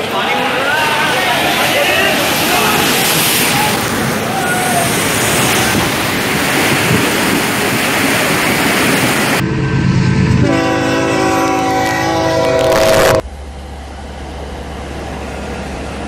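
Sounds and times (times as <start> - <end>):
train rushing through water: 0.0 - 16.0
train air horn chord: 10.4 - 13.2.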